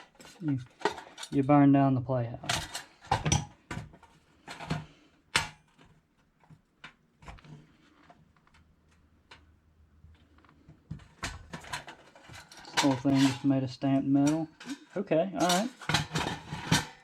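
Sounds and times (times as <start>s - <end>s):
metal parts clicking and knocking: 14.2s - 17.0s.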